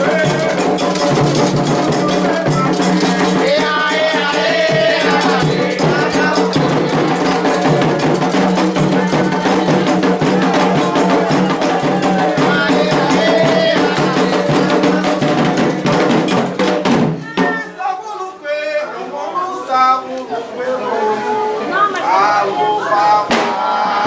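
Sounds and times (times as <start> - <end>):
person singing: 0.0 - 16.1
shaken rattles: 0.0 - 16.8
drums: 0.0 - 17.8, 23.3 - 24.0.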